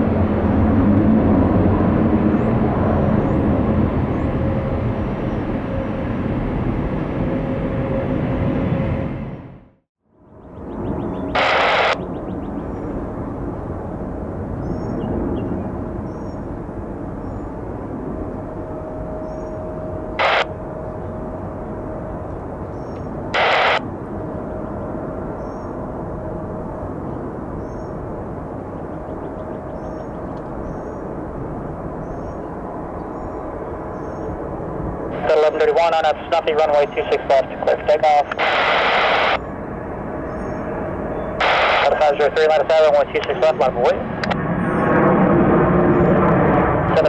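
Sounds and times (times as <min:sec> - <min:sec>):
jet airliner engine rush: 0:00.0 - 0:09.7, 0:10.5 - 0:47.0
radio static bursts: 0:11.3 - 0:12.0, 0:20.2 - 0:20.5, 0:23.4 - 0:23.8, 0:35.2 - 0:39.4, 0:41.4 - 0:44.0
faint bird chirps: 0:28.8 - 0:31.1, 0:32.0 - 0:34.4.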